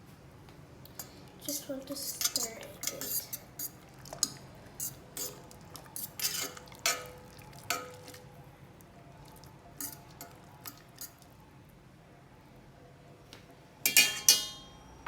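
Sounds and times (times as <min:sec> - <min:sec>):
utensil clinking against pot: 0:02.1 - 0:08.3, 0:09.8 - 0:11.2, 0:13.9 - 0:14.7.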